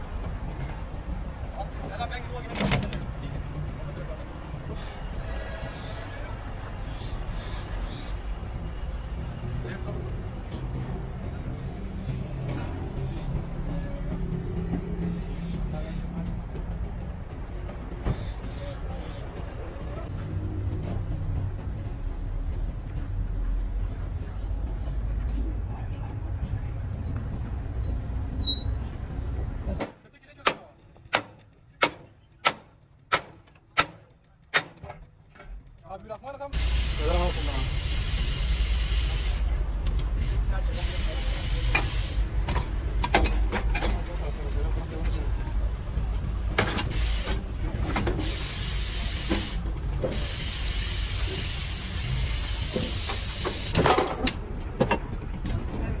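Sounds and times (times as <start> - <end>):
low engine rumble: 8.6 - 29.8, 36.6 - 56.0
low rumble: 20.1 - 29.8
high hissing spray: 36.6 - 42.3, 45.5 - 47.6, 48.2 - 53.8.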